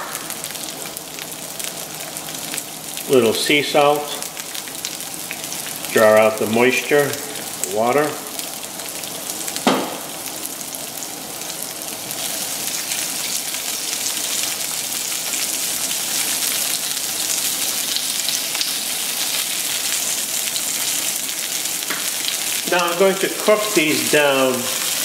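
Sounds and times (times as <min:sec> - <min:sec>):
onion sizzling in hot oil: 0:00.0 - 0:25.0
sharp knock: 0:09.6 - 0:10.0.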